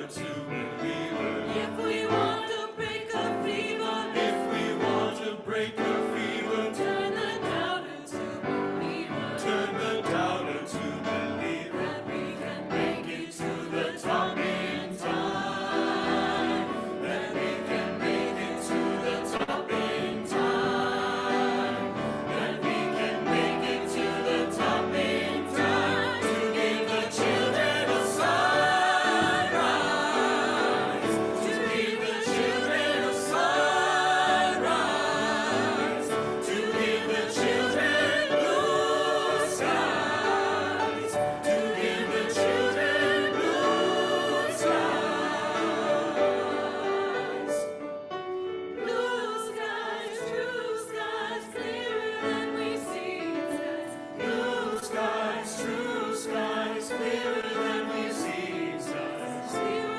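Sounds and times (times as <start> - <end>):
choir singing with vibrato: 0.0 - 59.9.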